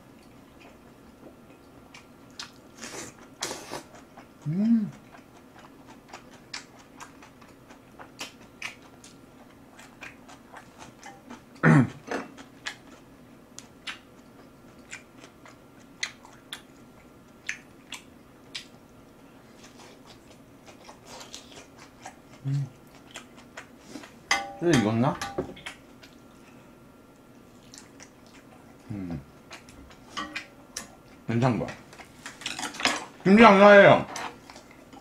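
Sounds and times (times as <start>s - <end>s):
faint steady hum: 0.0s - 35.0s
wet chewing and mouth smacks: 1.5s - 11.5s, 12.3s - 24.2s, 25.6s - 26.5s, 27.1s - 31.2s
person humming mm: 4.4s - 5.0s, 22.4s - 22.7s, 28.9s - 29.2s.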